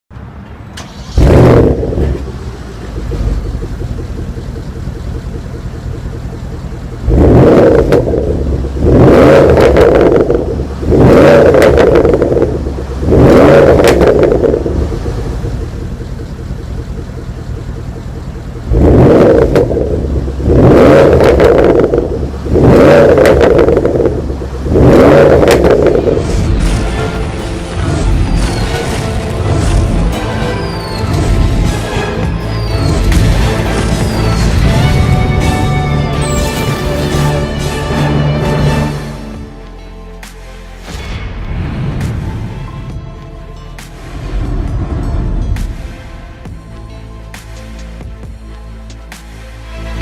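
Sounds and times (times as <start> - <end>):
car engine starting and idling: 0.1 - 50.0
engine revving in short blips: 0.8 - 5.2, 7.0 - 27.2.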